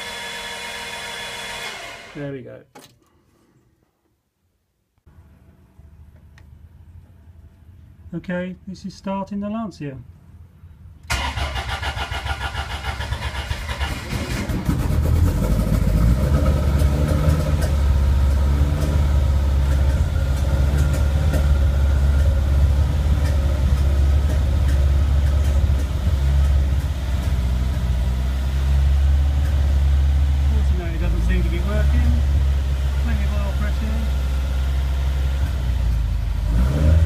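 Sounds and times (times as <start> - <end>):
starter motor cranking engine: 0.0 - 2.2, 11.1 - 27.8
engine idling: 11.1 - 36.4.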